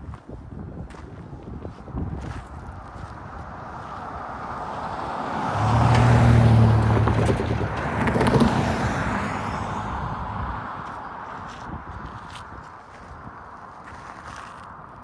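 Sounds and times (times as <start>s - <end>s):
vehicle passing by: 3.5s - 11.7s.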